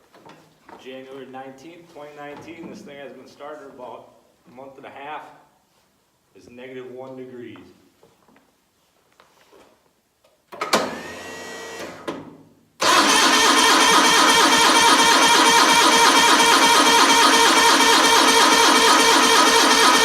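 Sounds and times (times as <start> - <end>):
starter motor cranking: 12.8 - 20.0.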